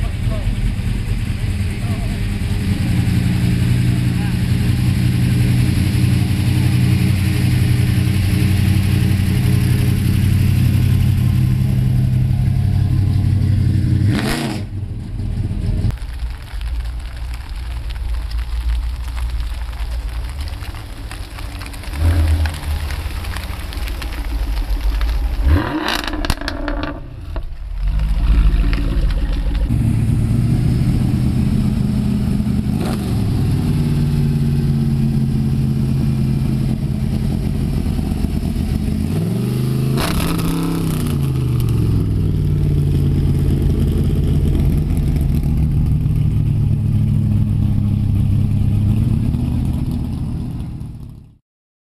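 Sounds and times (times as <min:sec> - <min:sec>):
car park noise: 0:00.0 - 0:18.0
car engine idling: 0:00.0 - 0:51.4.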